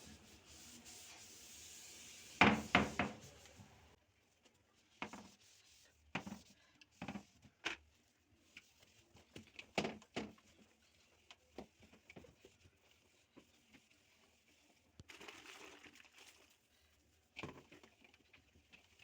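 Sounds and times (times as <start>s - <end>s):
towel rubbing: 0.0s - 3.7s.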